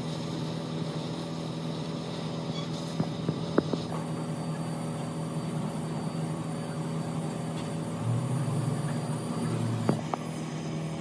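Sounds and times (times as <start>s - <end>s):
motor humming: 4.5s - 10.1s
deeper tone: 6.0s - 10.0s.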